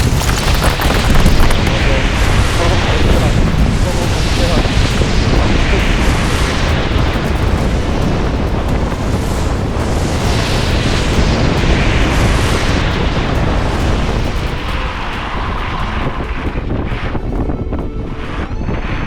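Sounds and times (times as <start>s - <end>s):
gale wind buffeting microphone: 0.0s - 19.0s.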